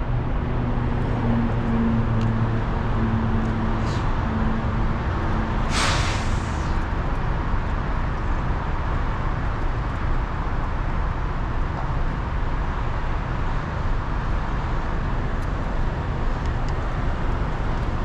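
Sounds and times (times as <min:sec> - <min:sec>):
road vehicle rumble: 0:00.0 - 0:18.0
short hiss: 0:05.7 - 0:06.8.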